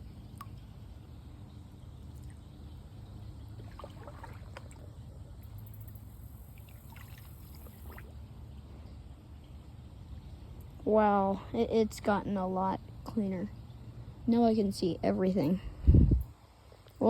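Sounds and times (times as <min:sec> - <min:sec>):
creek water splashing: 0:02.0 - 0:08.3.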